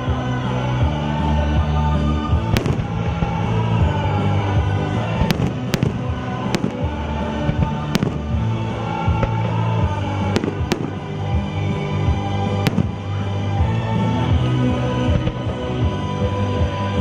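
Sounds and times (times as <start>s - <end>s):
music playing: 0.0s - 17.0s
fireworks bursting: 2.4s - 13.7s.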